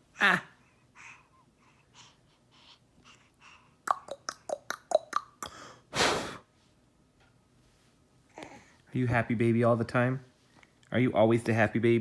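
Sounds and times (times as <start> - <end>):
mouth pops: 3.9 - 5.6
short breathy huff: 5.5 - 6.5.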